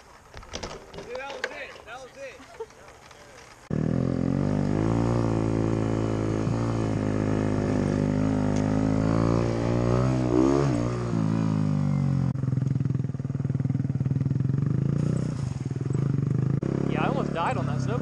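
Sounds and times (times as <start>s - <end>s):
motorcycle engine running: 3.6s - 18.0s.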